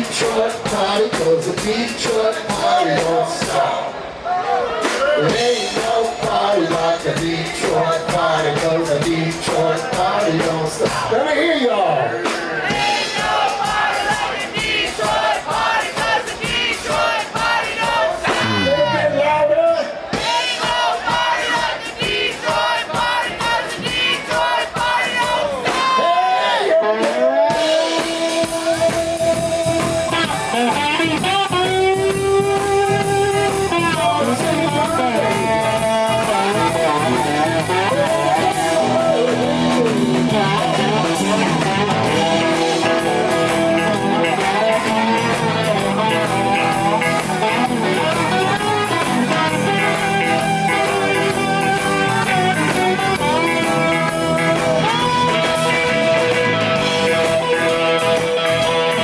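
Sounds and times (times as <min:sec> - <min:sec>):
blues-rock band playing: 0:00.0 - 0:59.0
electric guitar bending notes: 0:18.3 - 0:19.4, 0:27.5 - 0:59.0.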